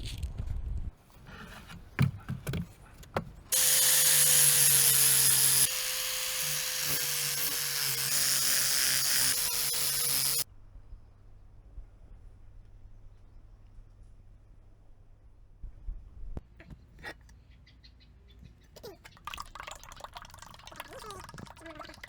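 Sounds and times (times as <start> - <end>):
power tool running on wood: 3.5 - 10.4.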